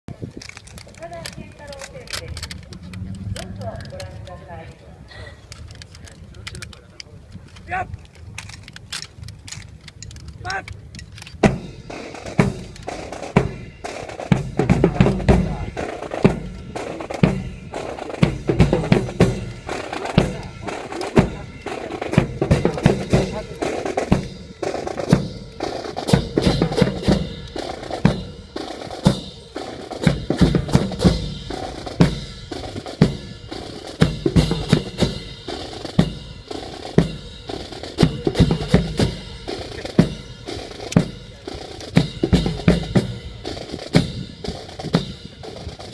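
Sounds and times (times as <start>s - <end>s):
snare drum with rimshots and rolls: 11.4s - 45.9s
bass drum: 14.3s - 28.4s.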